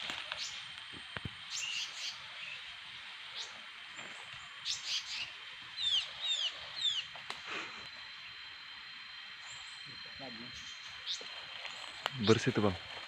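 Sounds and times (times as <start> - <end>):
bird chirps: 1.5 - 2.7, 3.3 - 7.2, 9.4 - 12.5.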